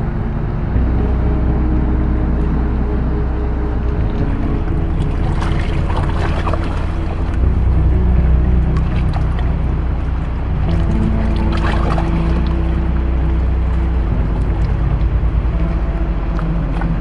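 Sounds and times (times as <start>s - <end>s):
slow sustained background music: 0.0s - 17.0s
river water rushing and splashing: 4.0s - 17.0s.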